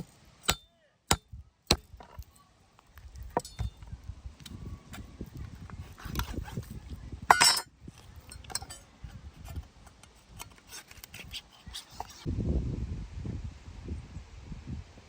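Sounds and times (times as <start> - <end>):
utensils and dishes clinking: 7.3 - 8.9.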